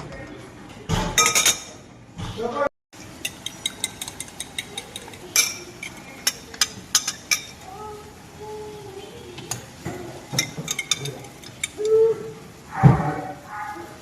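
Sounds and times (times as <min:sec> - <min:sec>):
metal utensil clinking on cookware: 0:01.2 - 0:01.8, 0:03.0 - 0:07.8, 0:09.4 - 0:12.0.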